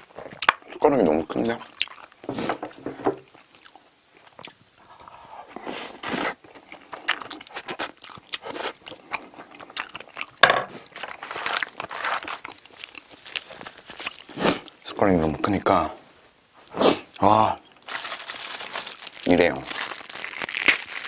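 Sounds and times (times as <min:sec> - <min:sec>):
chewing and wet mouth sounds: 0:00.1 - 0:02.3, 0:03.2 - 0:14.8.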